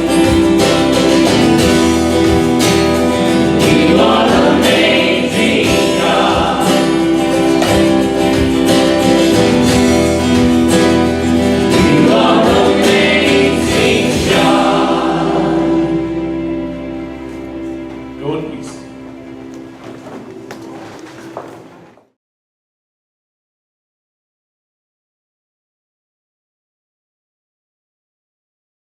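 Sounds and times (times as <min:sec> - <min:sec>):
choir singing a hymn: 0:00.0 - 0:17.8
acoustic guitar strumming: 0:00.0 - 0:22.0.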